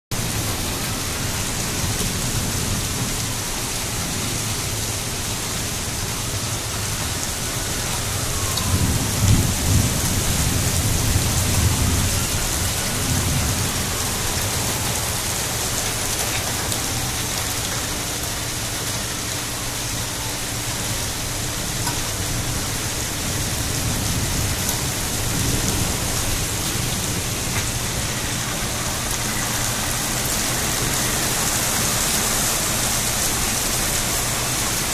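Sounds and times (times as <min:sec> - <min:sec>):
heavy rain falling: 0:00.1 - 0:34.9
thunder rumbling: 0:07.0 - 0:17.4, 0:22.2 - 0:32.0.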